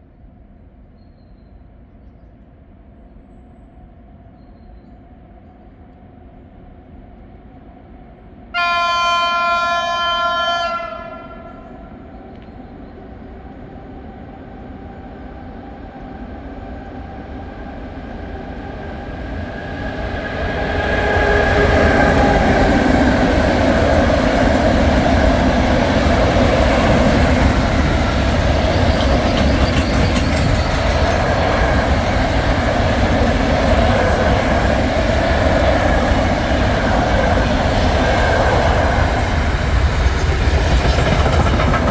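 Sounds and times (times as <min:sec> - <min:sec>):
train horn blast: 0:08.5 - 0:12.0
train passing roar: 0:08.5 - 0:41.9.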